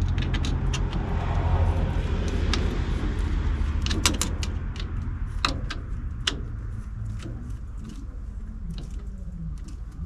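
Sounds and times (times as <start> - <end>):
low steady rumble: 0.0 - 10.0
light clicks and taps: 2.2 - 10.0.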